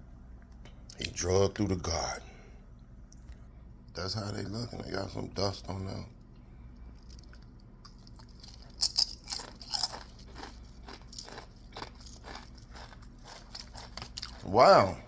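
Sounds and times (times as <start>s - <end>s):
chips crunching while chewed: 7.0s - 15.0s.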